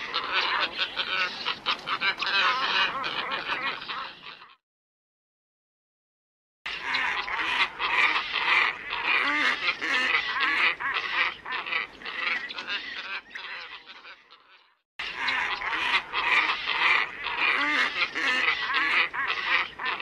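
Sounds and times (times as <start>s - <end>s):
ibises honking calls: 15.1s - 20.0s.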